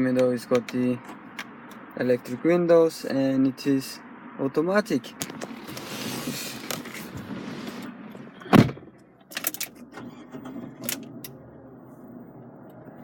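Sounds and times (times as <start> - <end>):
loud thump: 8.4 - 8.9.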